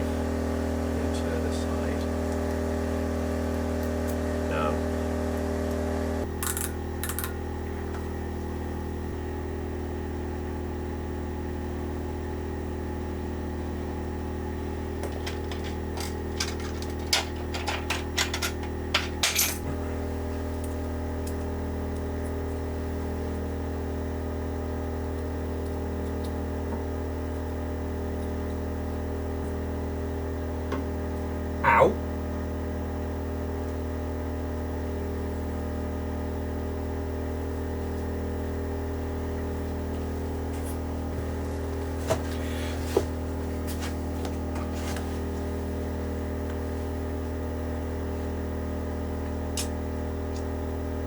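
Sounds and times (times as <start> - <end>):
steady mechanical hum: 0.0 - 51.0
metal shims clinking: 15.2 - 19.7.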